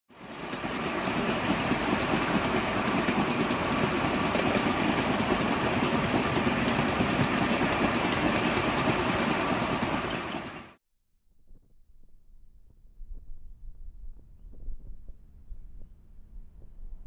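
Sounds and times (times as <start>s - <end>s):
locomotive diesel engine running: 0.1s - 10.8s
wagons rattling over track: 0.1s - 10.8s.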